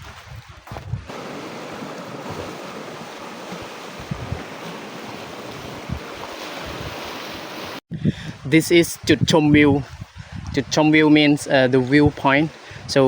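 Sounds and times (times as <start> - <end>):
wind buffeting microphone: 0.0 - 13.0
sea surf rushing: 1.1 - 7.8.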